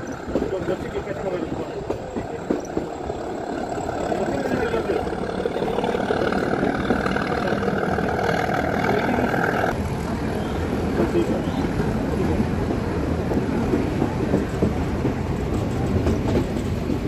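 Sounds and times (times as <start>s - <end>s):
train wheels clattering on rails: 0.0s - 17.0s.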